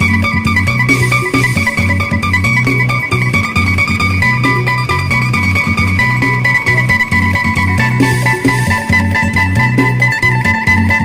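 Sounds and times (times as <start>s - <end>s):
low bass line: 0.0s - 11.0s
plucked lute notes: 0.0s - 11.0s.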